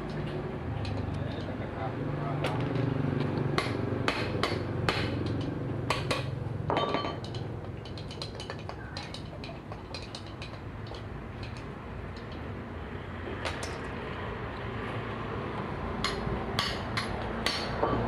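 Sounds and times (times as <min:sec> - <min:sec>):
hand tools clinking on metal: 0:06.7 - 0:12.4.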